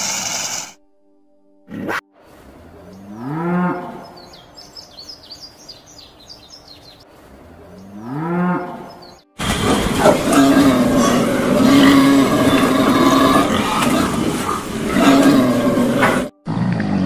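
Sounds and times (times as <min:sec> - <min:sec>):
birds chirping: 0:02.4 - 0:16.3
yak calling: 0:09.4 - 0:16.3
cougar snarl: 0:09.4 - 0:17.0.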